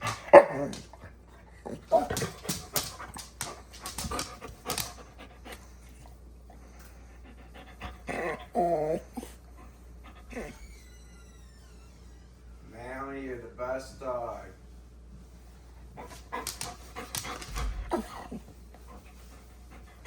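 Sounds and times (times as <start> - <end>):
dog whining: 0.0 - 3.0, 7.8 - 11.4, 16.0 - 19.0
dog panting: 0.0 - 10.6, 15.6 - 20.0.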